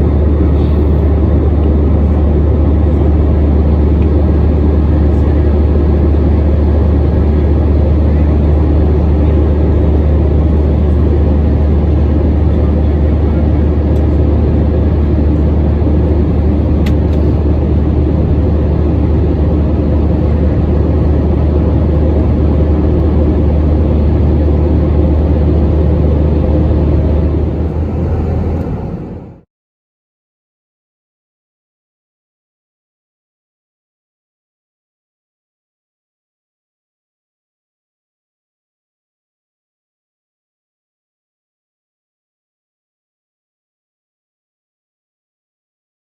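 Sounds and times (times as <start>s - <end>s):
rushing air roar: 0.0s - 7.8s, 22.3s - 29.5s
jet engines droning in cabin: 0.0s - 29.5s.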